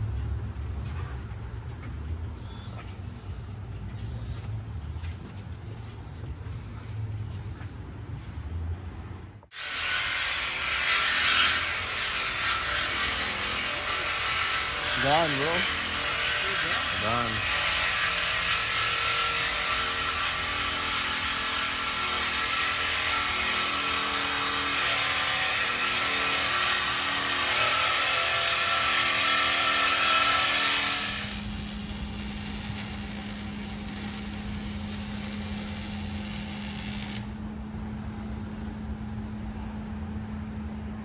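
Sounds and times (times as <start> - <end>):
power tools hissing: 9.6 - 37.5.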